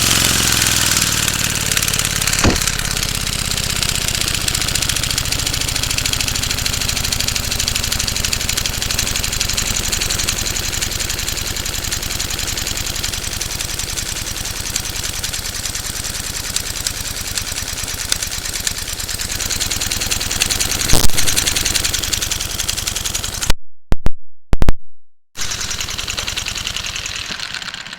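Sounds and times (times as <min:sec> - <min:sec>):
small engine rapid chatter: 0:00.0 - 0:23.5, 0:25.4 - 0:27.9
sharp knock: 0:02.4 - 0:03.1.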